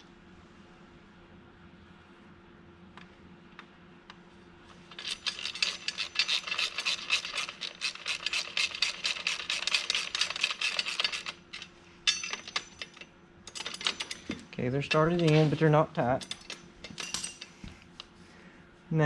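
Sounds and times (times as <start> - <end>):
ratchet wrench clicking rapidly: 5.0 - 11.4.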